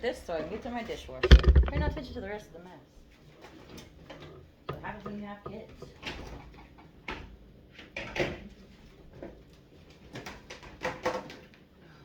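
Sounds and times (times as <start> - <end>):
household items clunking: 0.4 - 2.4, 3.4 - 8.5.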